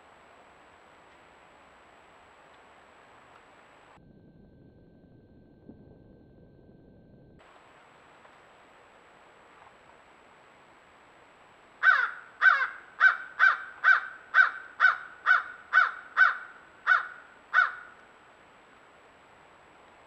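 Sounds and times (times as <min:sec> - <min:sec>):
bird calling rapidly: 0:11.8 - 0:18.0.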